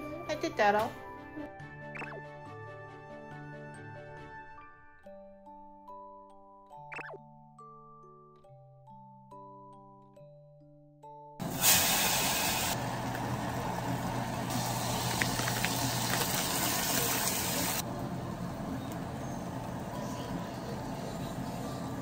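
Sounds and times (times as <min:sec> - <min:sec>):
noodles sizzling in a saucepan: 0:11.4 - 0:17.8.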